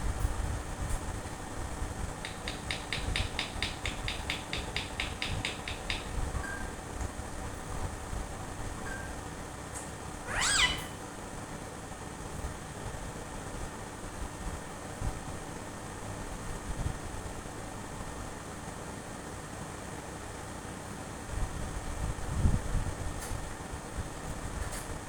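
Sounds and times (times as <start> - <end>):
low background hum: 0.0 - 25.0
parrot call: 10.3 - 11.1.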